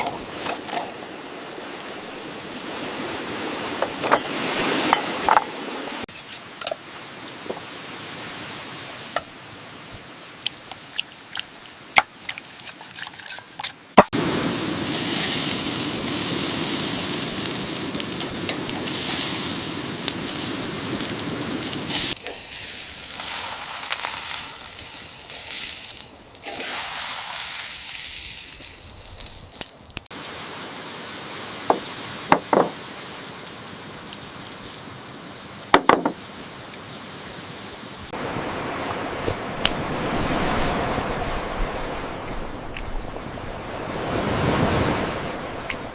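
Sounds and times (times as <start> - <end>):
food sizzling on a grill: 0.0 - 2.0, 14.3 - 30.1.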